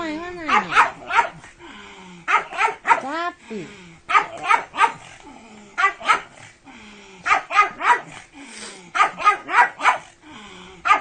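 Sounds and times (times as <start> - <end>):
dog barking: 0.4 - 1.4, 2.3 - 3.1, 4.1 - 5.1, 5.8 - 6.4, 7.2 - 8.2, 8.9 - 10.1.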